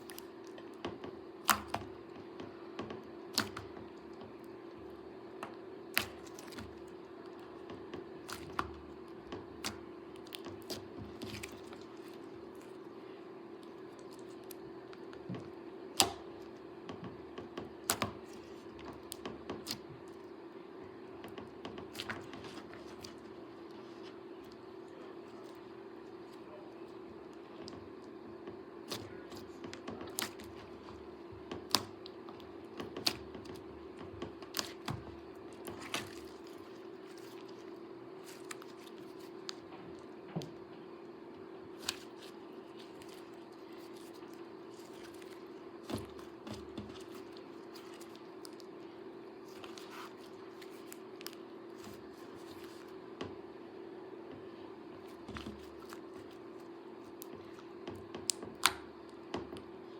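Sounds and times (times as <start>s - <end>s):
steady low hum: 0.0s - 59.9s
slime clicking and popping: 58.2s - 58.9s.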